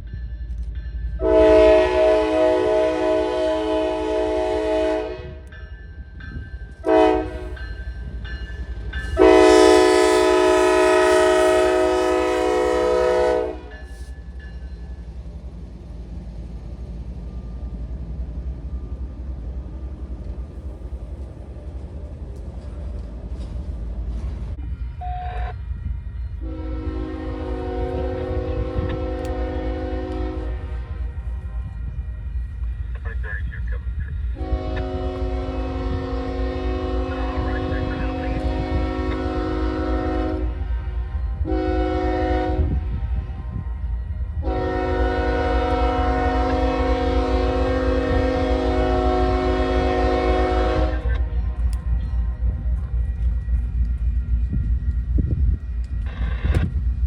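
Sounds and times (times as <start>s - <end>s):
low train rumble: 0.0s - 57.0s
locomotive air horn blasts: 1.2s - 5.4s, 6.8s - 7.6s, 9.2s - 14.0s, 26.4s - 31.2s, 34.4s - 43.2s, 44.4s - 51.5s.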